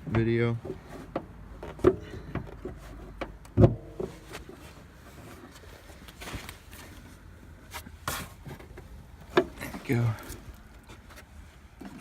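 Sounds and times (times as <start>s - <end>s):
metallic clunks of truck hood: 3.2s - 4.1s.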